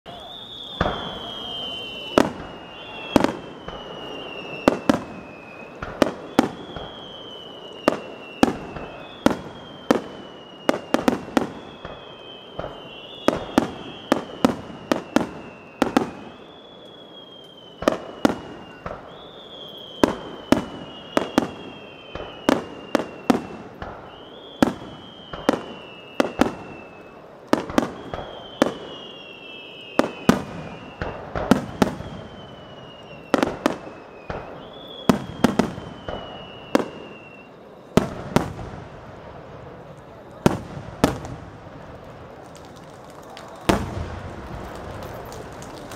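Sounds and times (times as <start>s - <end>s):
firework whistles falling in pitch: 0.0s - 41.6s, 42.3s - 45.9s
firework bangs and cracks: 0.1s - 45.9s.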